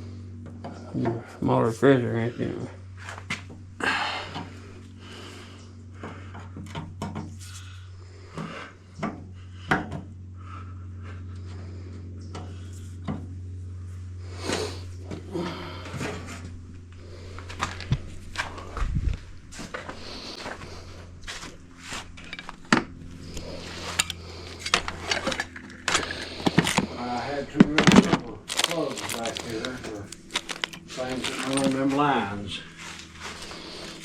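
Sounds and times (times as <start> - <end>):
steady low hum: 0.0 - 34.0
metal tools clinking: 23.3 - 26.9, 27.8 - 32.1.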